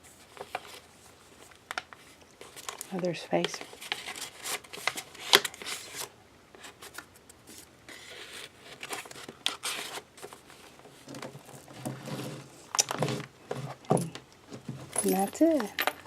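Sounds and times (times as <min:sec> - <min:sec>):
paper pages rustling: 0:00.0 - 0:12.5.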